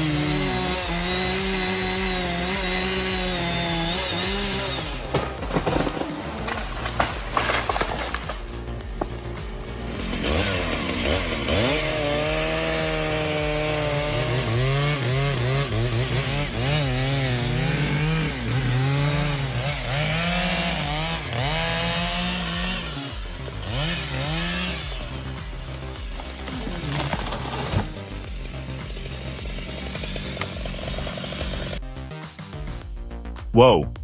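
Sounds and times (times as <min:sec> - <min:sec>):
chainsaw cutting into tree: 0:00.0 - 0:32.0.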